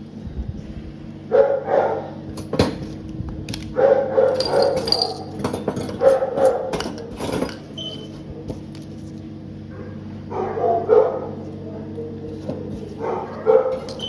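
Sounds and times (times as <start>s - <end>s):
dog barking: 1.3s - 2.2s, 3.8s - 4.9s, 6.0s - 6.8s, 9.7s - 11.9s, 12.9s - 14.0s.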